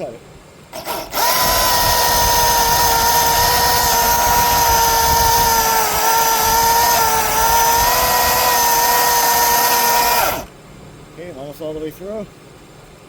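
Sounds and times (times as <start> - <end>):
electric chainsaw cutting wood: 0.7 - 10.5.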